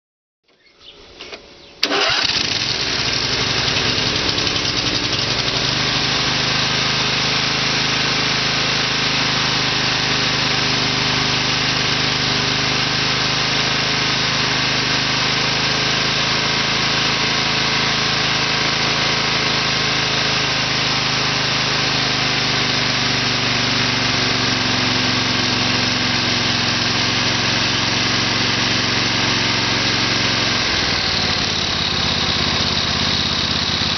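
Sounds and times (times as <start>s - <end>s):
engine cranking and running: 1.8s - 9.1s, 22.2s - 33.9s.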